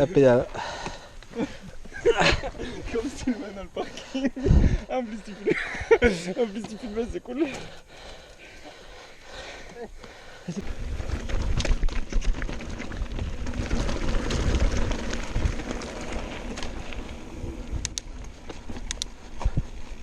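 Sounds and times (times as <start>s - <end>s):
wind on microphone: 4.4s - 4.9s
bike tyres rumbling over stones: 10.6s - 20.0s.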